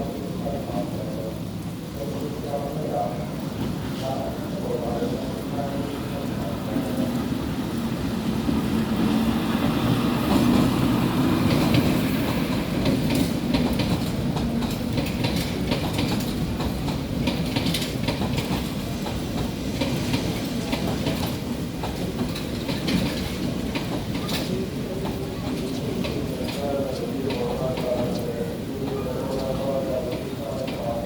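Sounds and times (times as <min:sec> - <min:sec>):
train engine drone: 0:00.0 - 0:31.0
wheels clacking over rail joints: 0:06.6 - 0:31.0.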